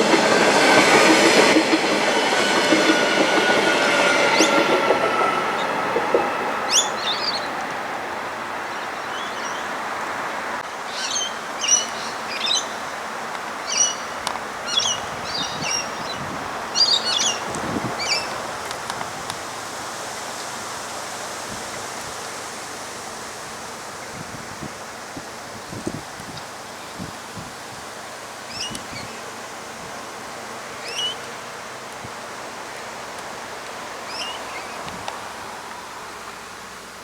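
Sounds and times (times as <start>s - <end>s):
background hiss: 0.0s - 37.0s
small birds chirping: 30.8s - 31.4s, 34.1s - 35.0s.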